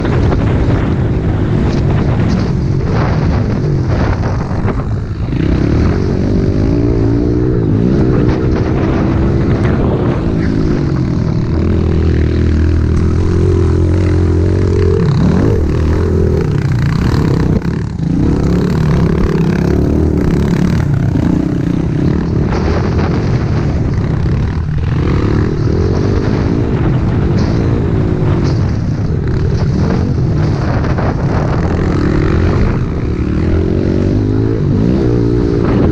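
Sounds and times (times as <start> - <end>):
small motorbike engine revving: 1.6 - 28.6.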